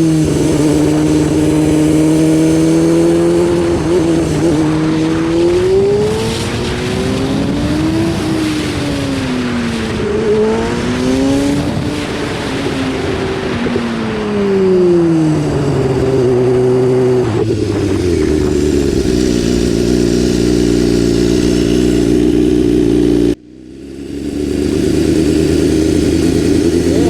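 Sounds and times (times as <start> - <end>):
motorcycle engine: 0.0 - 27.0.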